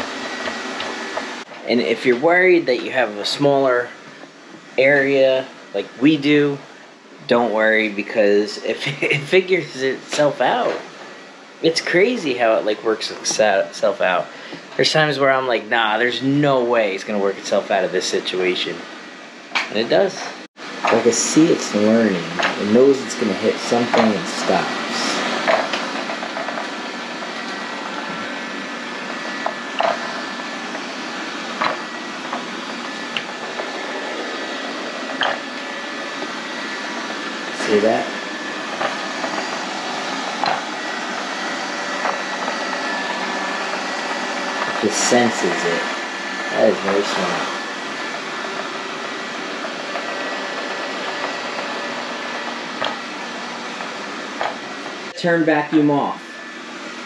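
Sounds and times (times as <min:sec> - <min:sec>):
robot vacuum motor humming: 0:00.0 - 0:05.1, 0:19.7 - 0:55.2.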